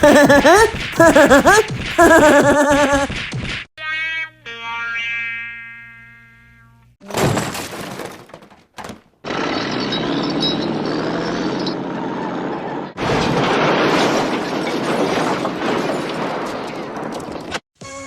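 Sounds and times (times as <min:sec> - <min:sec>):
cartoon crashing and breaking: 0:00.0 - 0:03.6, 0:07.0 - 0:17.6.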